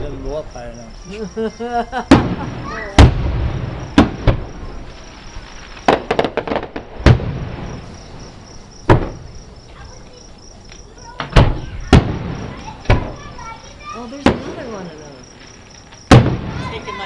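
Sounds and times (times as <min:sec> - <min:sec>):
crickets chirping: 0:00.0 - 0:17.0
distant firework bangs: 0:02.0 - 0:10.2, 0:10.8 - 0:17.0
crackling pops: 0:03.9 - 0:08.0.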